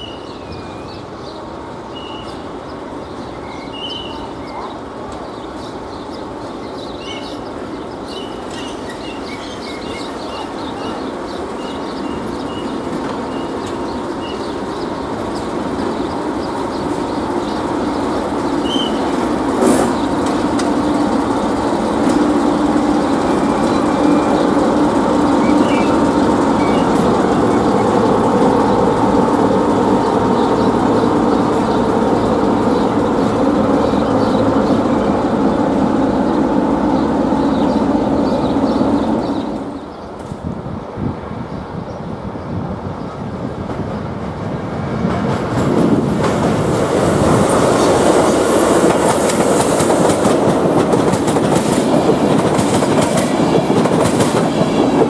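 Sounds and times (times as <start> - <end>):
small birds chirping: 0.0 - 21.7, 22.7 - 40.2
train rumble: 0.0 - 55.0.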